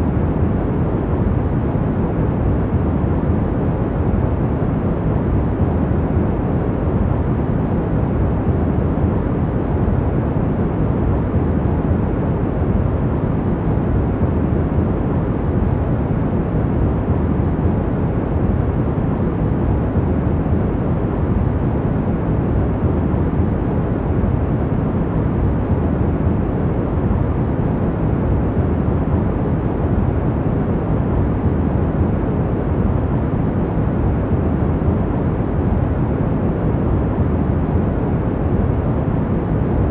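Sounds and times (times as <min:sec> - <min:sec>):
deep muffled steady noise: 0:00.0 - 0:39.9.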